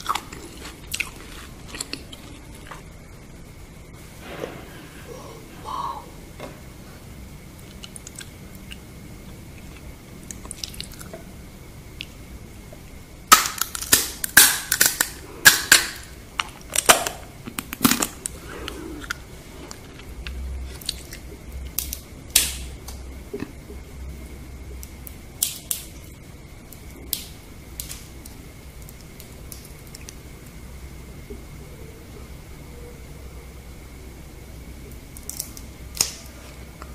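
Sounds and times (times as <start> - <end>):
crunching of fried scorpion: 0.0 - 2.9, 9.6 - 11.1, 13.3 - 23.6.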